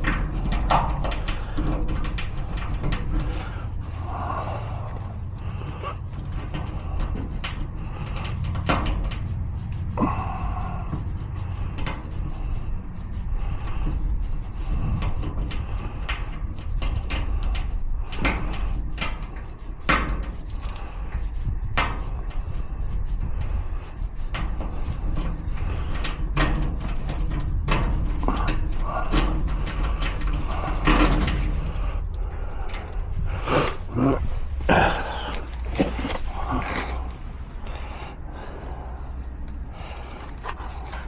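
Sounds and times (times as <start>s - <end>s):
low rumble: 0.0s - 8.4s, 22.4s - 41.0s.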